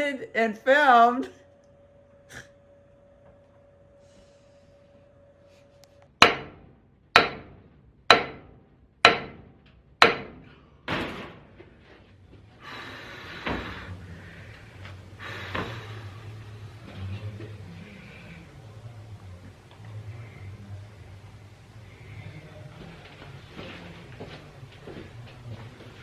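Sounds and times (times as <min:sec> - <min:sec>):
low hum: 0:00.0 - 0:26.0
hammer-like bangs ringing: 0:06.2 - 0:11.4.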